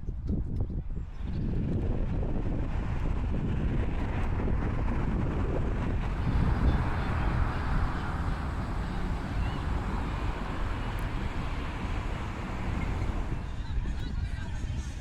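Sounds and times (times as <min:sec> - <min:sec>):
wind buffeting microphone: 0:00.0 - 0:15.0
steady outdoor hiss: 0:06.1 - 0:13.6.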